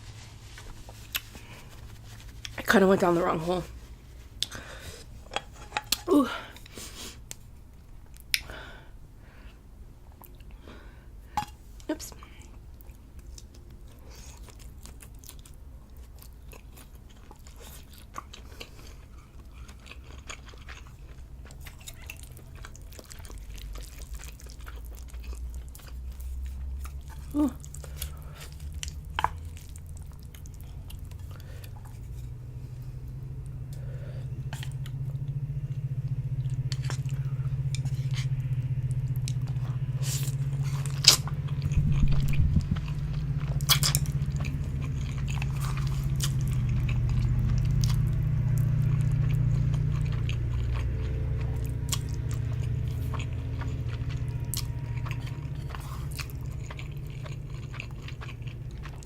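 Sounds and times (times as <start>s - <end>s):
chewing noodles: 0.1s - 8.6s, 11.4s - 59.0s
low rumble: 28.0s - 59.0s.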